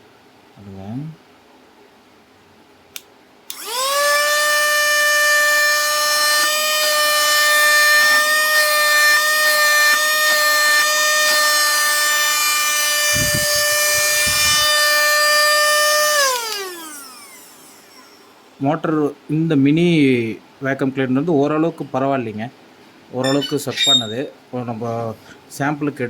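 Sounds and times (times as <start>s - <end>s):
vacuum motor whine: 3.5s - 18.6s.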